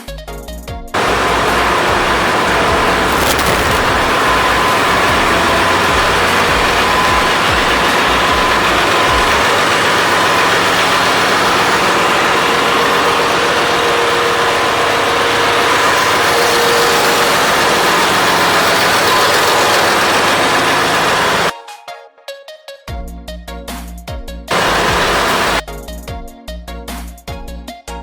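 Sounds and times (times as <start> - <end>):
ship engine room machinery: 1.0 - 21.5, 24.5 - 25.6.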